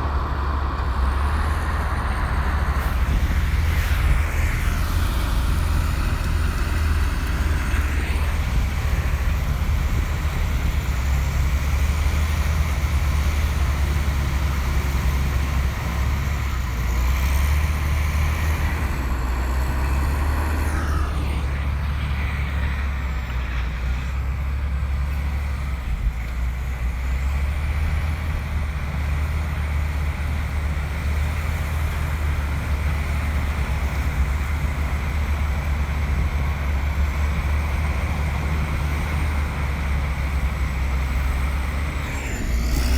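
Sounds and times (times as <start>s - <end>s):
bulldozer diesel engine drone: 0.0s - 42.9s.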